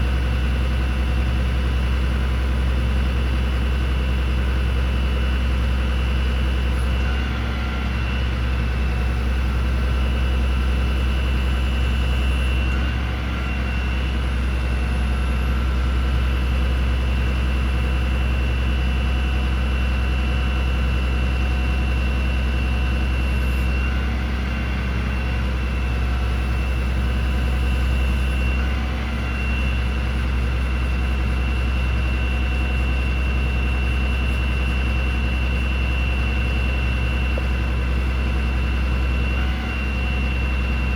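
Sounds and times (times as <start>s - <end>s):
diesel truck idling: 0.0s - 40.9s.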